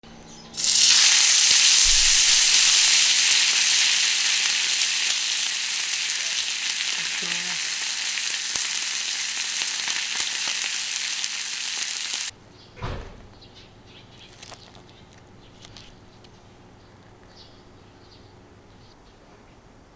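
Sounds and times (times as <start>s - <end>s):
steak sizzling on hot plate: 0.6s - 12.3s.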